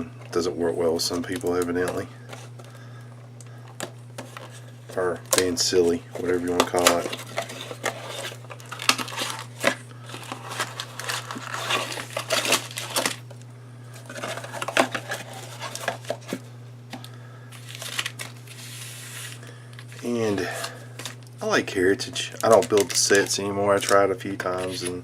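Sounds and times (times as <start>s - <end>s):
steady low hum: 0.0s - 25.0s
plastic wrap crinkling and tearing: 6.2s - 13.4s, 17.5s - 21.3s, 22.0s - 24.9s.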